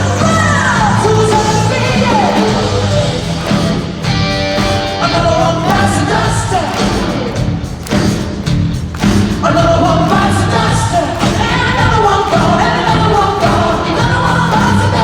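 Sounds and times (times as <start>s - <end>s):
live rock band playing: 0.0s - 15.0s
person singing: 4.7s - 7.4s, 9.4s - 15.0s.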